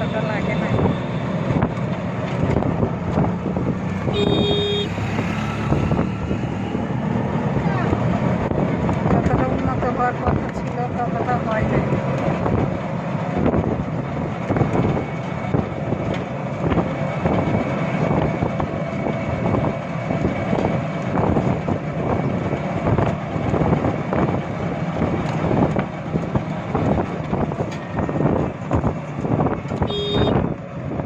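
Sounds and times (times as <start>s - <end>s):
vehicle road noise: 0.0s - 31.0s
wind buffeting microphone: 0.3s - 4.2s, 4.9s - 31.0s
body rattles and knocks: 1.4s - 4.0s, 11.7s - 30.7s.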